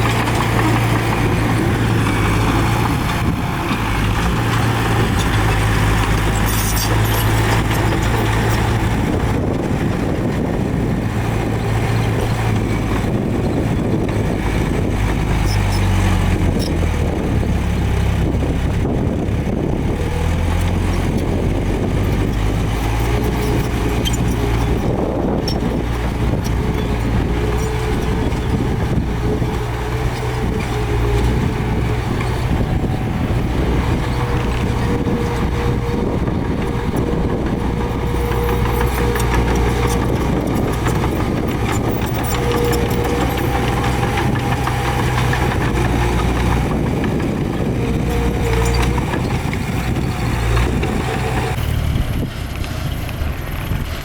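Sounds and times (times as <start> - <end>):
heavy diesel machinery running: 0.0 - 54.0.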